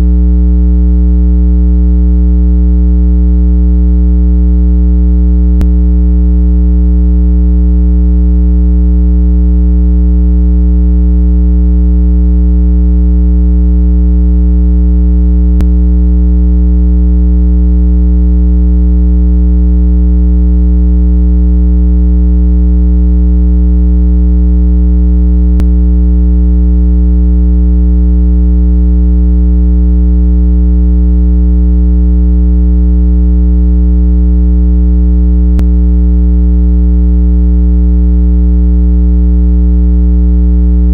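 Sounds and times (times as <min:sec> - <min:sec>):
buzzy low synthesized tone: 0:00.0 - 0:29.5, 0:35.1 - 0:36.4.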